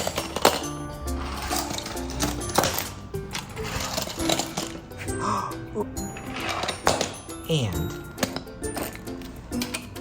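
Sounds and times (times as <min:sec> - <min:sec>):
toy trains rattling on wooden track: 0:00.0 - 0:04.9, 0:06.1 - 0:07.4
background music: 0:00.0 - 0:10.0.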